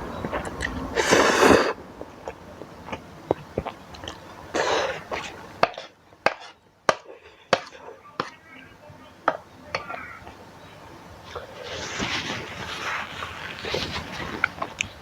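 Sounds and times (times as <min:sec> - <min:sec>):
person eating noodles: 0:00.2 - 0:08.0
burst of noise at mouth: 0:00.4 - 0:01.8.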